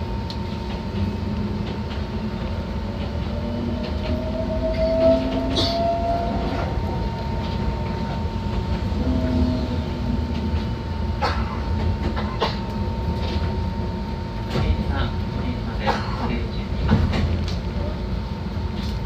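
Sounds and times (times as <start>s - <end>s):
train wheels rumbling on rails: 0.0s - 19.0s
train motor whine: 0.4s - 12.2s.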